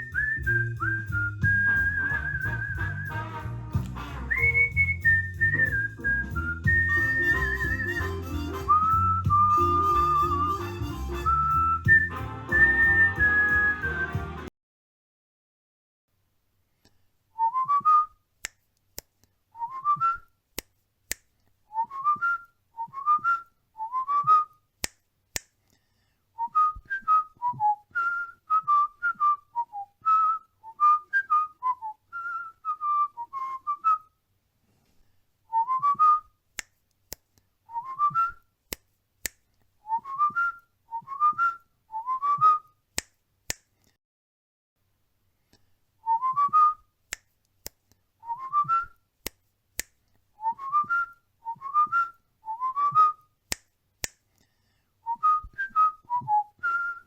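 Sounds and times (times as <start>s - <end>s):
cockatiel whistling a tune: 0.0s - 3.3s, 4.3s - 14.3s, 50.4s - 53.2s, 55.1s - 57.0s.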